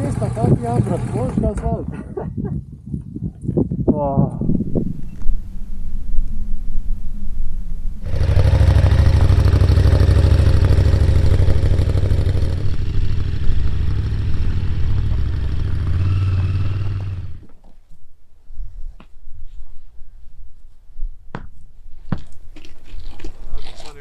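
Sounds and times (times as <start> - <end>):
motorcycle engine idling: 8.0 - 17.4.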